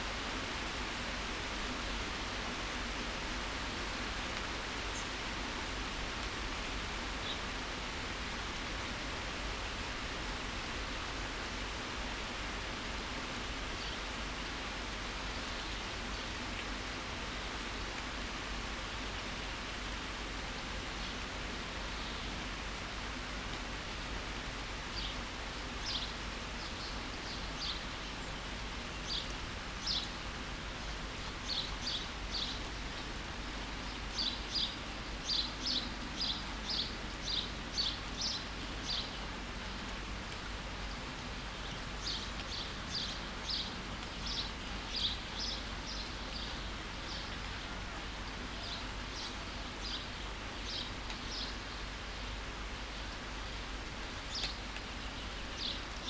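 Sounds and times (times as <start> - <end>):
steady rain falling: 0.0 - 56.0
songbird chirping: 24.8 - 30.2, 31.2 - 39.4, 41.6 - 56.0.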